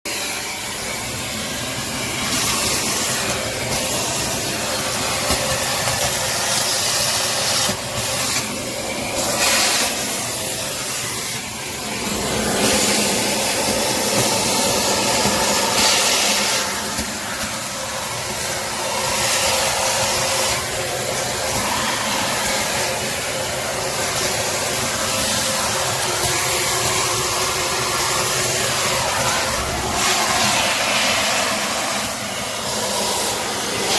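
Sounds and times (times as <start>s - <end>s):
vacuum cleaner running: 0.0s - 33.9s.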